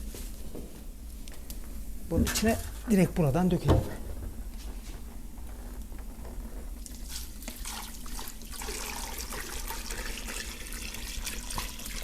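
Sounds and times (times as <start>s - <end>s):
water pouring into a pot: 7.5s - 12.0s.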